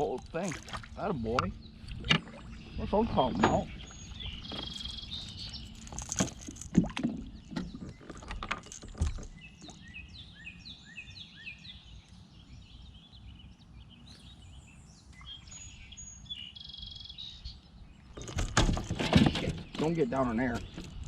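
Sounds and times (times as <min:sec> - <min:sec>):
sharp knocks and clatters: 0:18.2 - 0:21.0.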